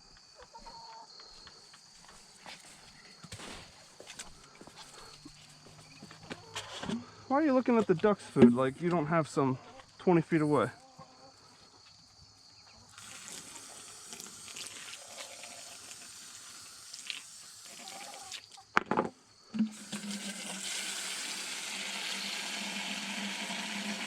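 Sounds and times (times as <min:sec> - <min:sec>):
water running from a hose: 0:13.0 - 0:18.6, 0:19.7 - 0:24.0.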